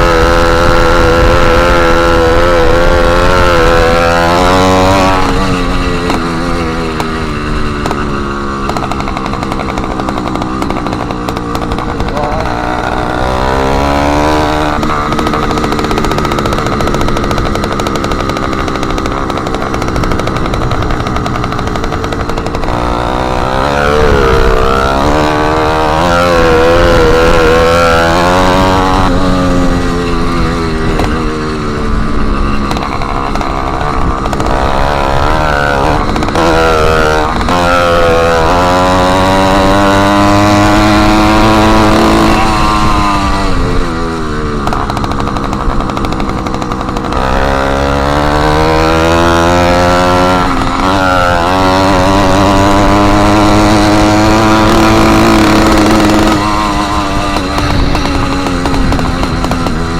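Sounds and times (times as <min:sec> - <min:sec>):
small motorbike engine revving: 0:00.0 - 0:59.9.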